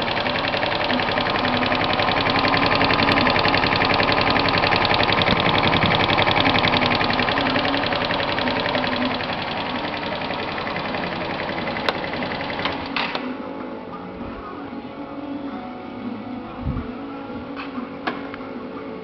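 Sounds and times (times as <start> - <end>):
moped engine running: 0.0 - 13.4
clicks: 0.1 - 13.3.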